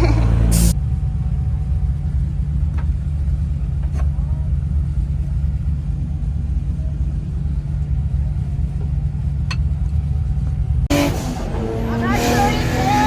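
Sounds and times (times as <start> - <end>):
car engine low rumble: 0.0 - 13.0.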